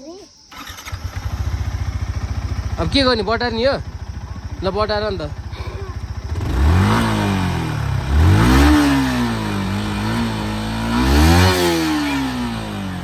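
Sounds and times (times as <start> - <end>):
motorcycle engine revving: 0.5 - 13.0.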